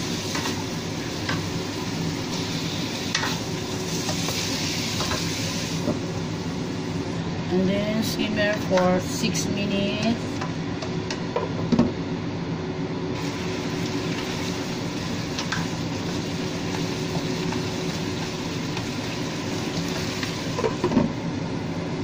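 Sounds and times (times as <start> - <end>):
chicken sizzling in sauce: 0.0 - 5.9, 13.2 - 20.8
steady low hum: 0.0 - 22.0.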